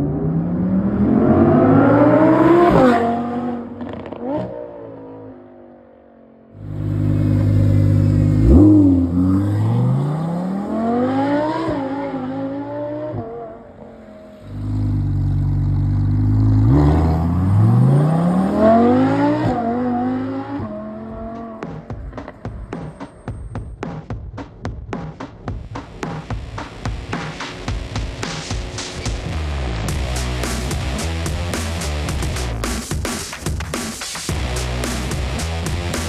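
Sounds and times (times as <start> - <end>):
car engine revving hard: 0.0 - 4.5, 6.6 - 13.4, 14.2 - 21.6.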